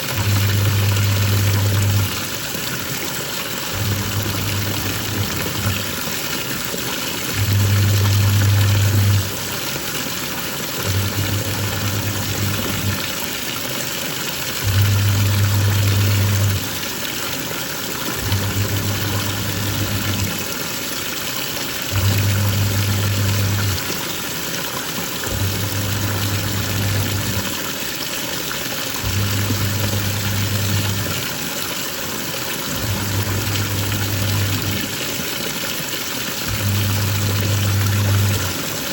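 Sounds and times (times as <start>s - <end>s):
washing machine motor humming: 0.0s - 38.9s
water sloshing: 21.9s - 38.9s.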